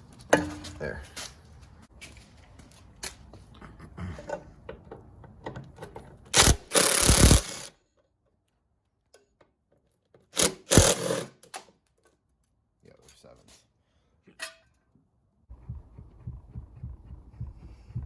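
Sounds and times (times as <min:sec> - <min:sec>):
cordless power driver spinning: 0:06.4 - 0:07.7, 0:10.4 - 0:11.3
tools clicking: 0:06.4 - 0:07.7, 0:10.4 - 0:11.7.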